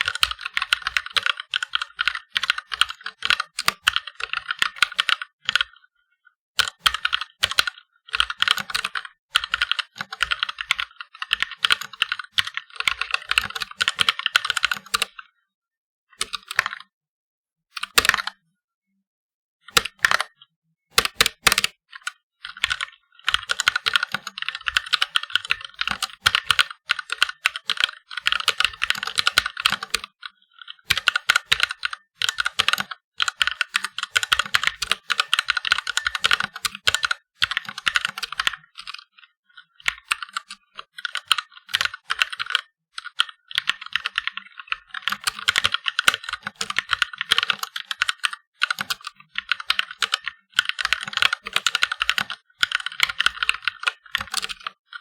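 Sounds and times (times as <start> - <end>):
typing on mechanical keyboard: 0.0 - 5.8, 6.6 - 15.2, 16.2 - 16.9, 17.8 - 18.4, 19.7 - 20.4, 21.0 - 55.0.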